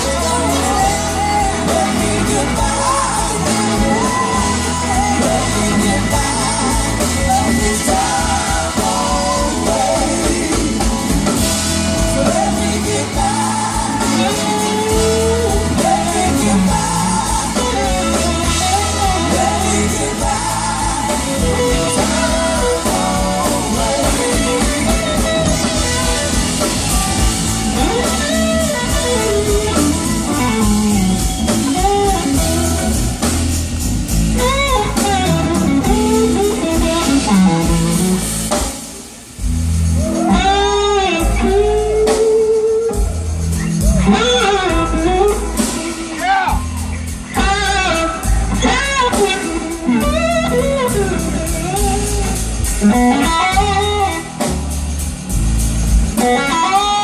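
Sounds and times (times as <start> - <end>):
person singing: 0.0 - 33.5, 34.4 - 38.5
drum kit: 0.0 - 57.0
electric guitar: 0.0 - 57.0.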